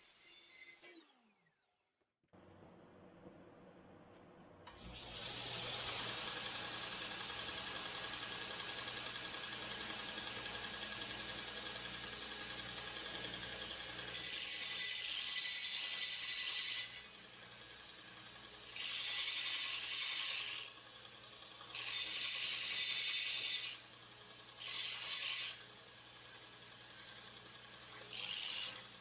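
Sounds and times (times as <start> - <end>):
tool scraping steel tubing: 12.6 - 17.2, 18.7 - 20.8, 21.7 - 23.9, 24.6 - 25.6, 27.8 - 29.0.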